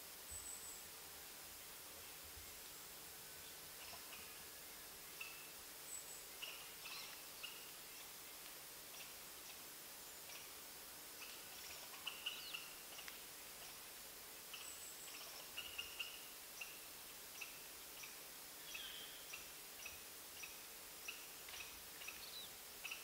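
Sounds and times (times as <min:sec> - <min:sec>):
steady forest hiss: 0:00.0 - 0:23.0
small bird chirping: 0:11.2 - 0:13.1.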